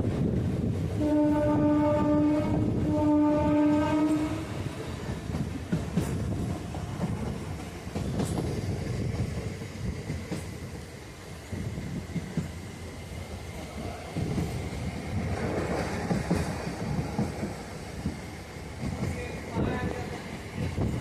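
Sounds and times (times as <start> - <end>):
train rumbling along track: 0.0 - 21.0
train horn: 1.0 - 4.6.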